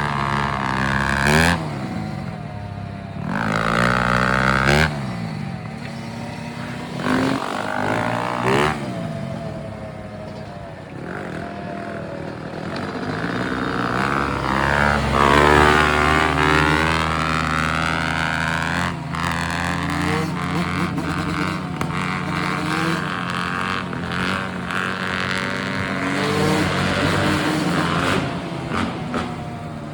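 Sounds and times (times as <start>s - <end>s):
dirt bike revving hard: 0.0s - 2.5s, 3.1s - 9.6s, 11.0s - 29.9s
dirt bike engines running: 0.0s - 29.9s.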